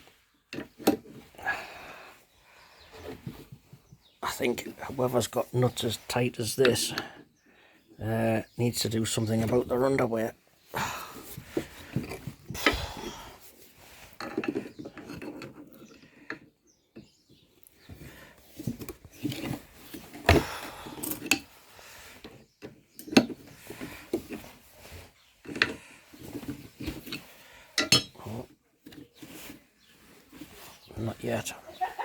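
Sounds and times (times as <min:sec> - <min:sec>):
metal tools clanking and scraping: 0:13.9 - 0:16.5, 0:18.6 - 0:21.5, 0:22.2 - 0:29.6.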